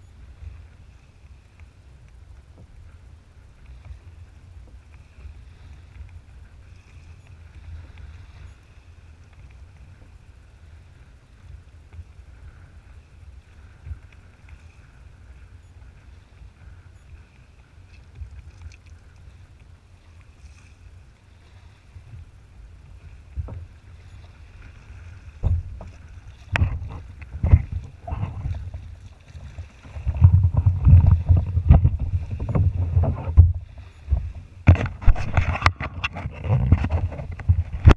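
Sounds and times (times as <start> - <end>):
wind rumble on microphone: 0.0 - 37.9
heavy thumps and clatter: 25.4 - 25.9, 29.9 - 37.9.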